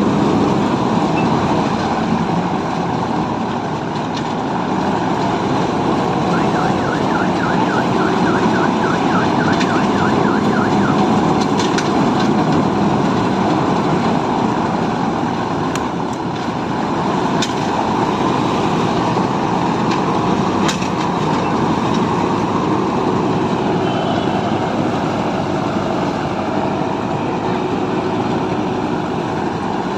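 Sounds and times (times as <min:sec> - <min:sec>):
combine harvester running: 0:00.0 - 0:29.9
warbling siren-like tone: 0:06.2 - 0:11.2.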